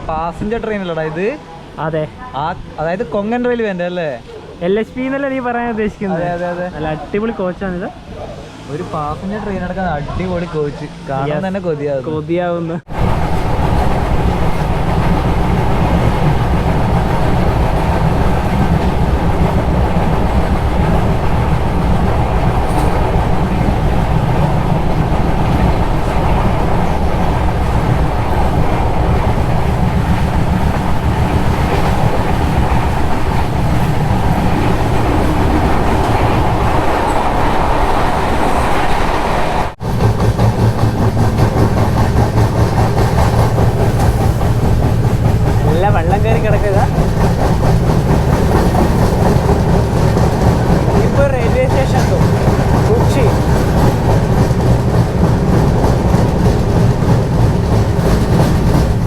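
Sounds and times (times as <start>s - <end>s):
train rumbling on rails: 0.0s - 59.0s
wheels clattering over track: 12.9s - 59.0s.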